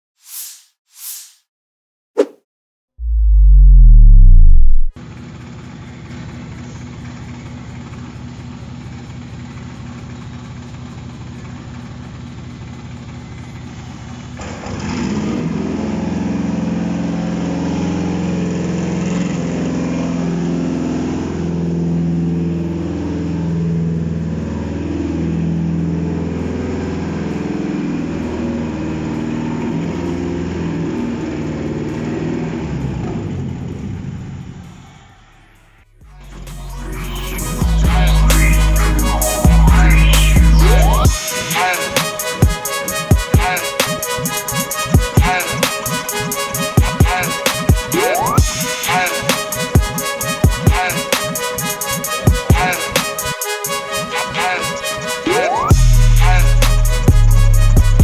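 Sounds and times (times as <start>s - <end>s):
car engine running on test stand: 5.0s - 34.2s.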